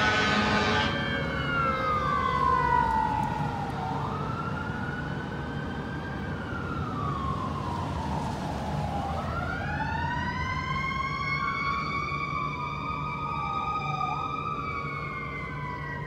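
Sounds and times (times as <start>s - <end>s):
second siren tone: 0.0s - 3.7s
fire engine siren wailing: 0.0s - 16.0s.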